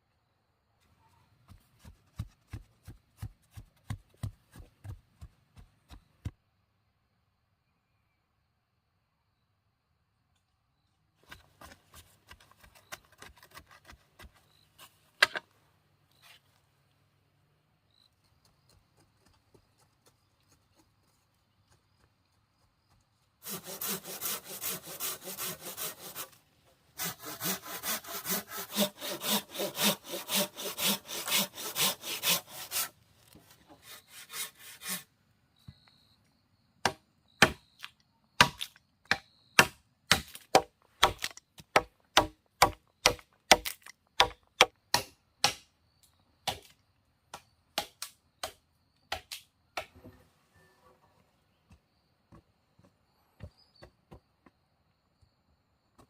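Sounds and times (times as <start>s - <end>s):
hand saw cutting wood: 23.4s - 35.1s.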